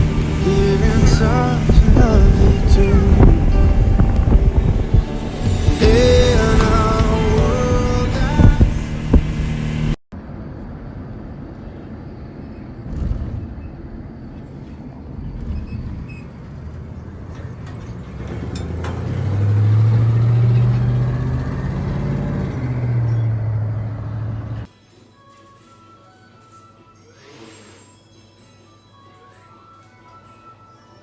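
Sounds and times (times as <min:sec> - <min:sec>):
engine rumbling hum: 0:00.0 - 0:24.7.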